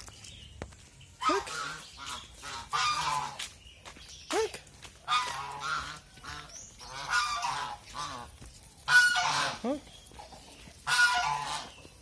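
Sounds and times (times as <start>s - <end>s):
geese honking: 1.2s - 3.5s, 5.0s - 12.0s.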